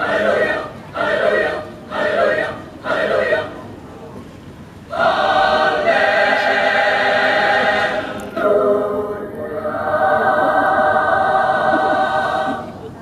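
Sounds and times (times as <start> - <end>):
choir singing sustained chords: 0.0 - 3.7, 4.9 - 13.0.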